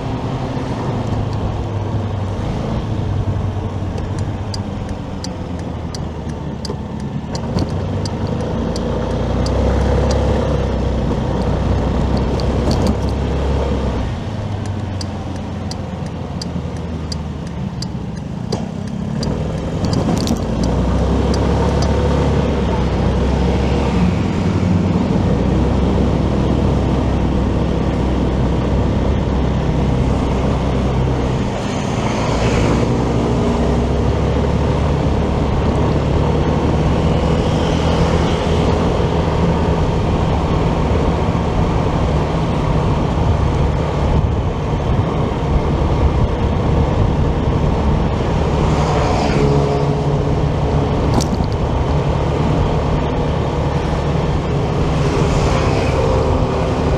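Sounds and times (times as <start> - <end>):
motorcycle engine running: 0.0 - 24.0
road and wind noise: 0.0 - 56.9
vehicles passing: 0.0 - 56.9.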